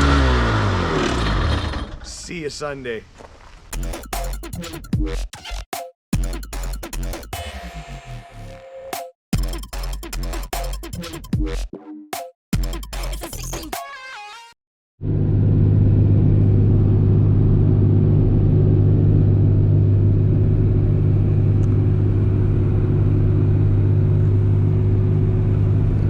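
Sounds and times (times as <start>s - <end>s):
engine running: 0.0s - 2.0s, 15.0s - 26.0s.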